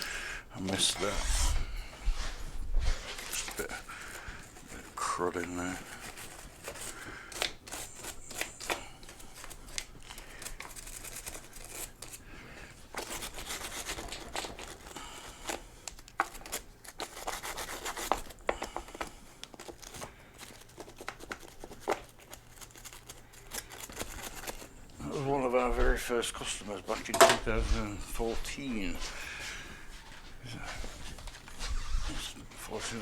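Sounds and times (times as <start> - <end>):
hand rubbing a seat: 0.7 - 4.9, 25.0 - 29.0, 30.0 - 33.0.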